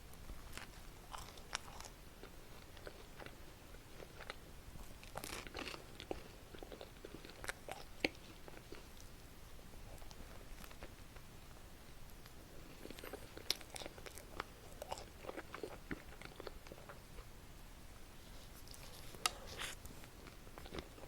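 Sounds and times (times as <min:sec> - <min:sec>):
crunchy bites and chewing: 0:00.4 - 0:09.0, 0:12.8 - 0:17.0.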